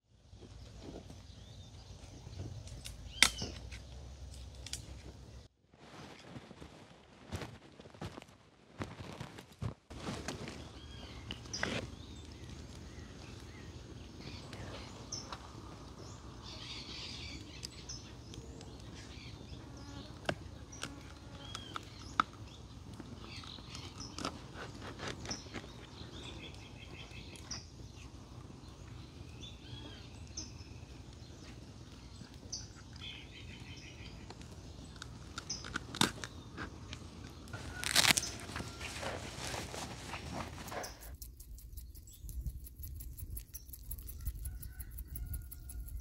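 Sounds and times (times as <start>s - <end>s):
birds chirping: 10.3s - 46.0s
sharp clicks: 41.0s - 46.0s.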